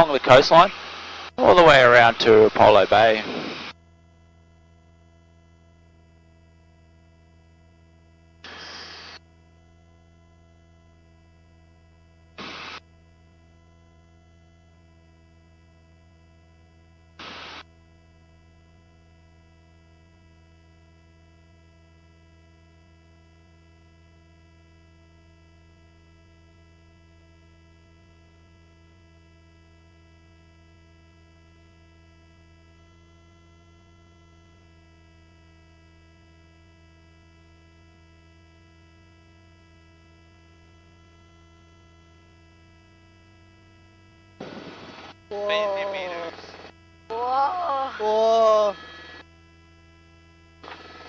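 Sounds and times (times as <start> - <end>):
short burst of noise: 8.4 - 9.2, 44.4 - 46.7
helicopter engine and rotor drone: 44.4 - 49.2.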